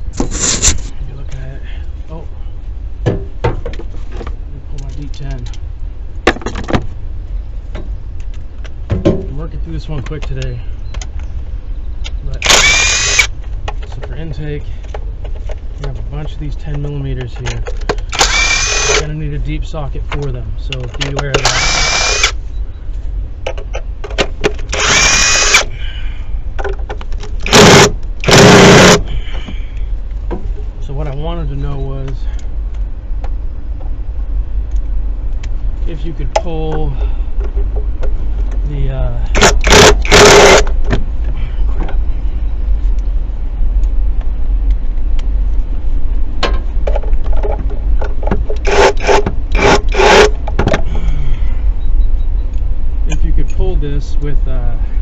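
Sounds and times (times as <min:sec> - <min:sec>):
steady low rumble: 0:00.0 - 0:55.0
power tool whirring: 0:00.2 - 0:00.9, 0:12.4 - 0:13.3, 0:18.1 - 0:19.0, 0:21.4 - 0:22.4, 0:24.7 - 0:25.7, 0:27.4 - 0:29.0, 0:39.3 - 0:40.7, 0:48.6 - 0:50.3.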